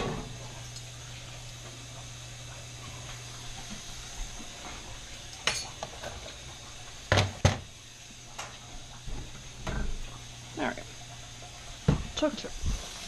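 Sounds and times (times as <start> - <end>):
kitchen utensils and dishes handled: 5.2 - 6.4.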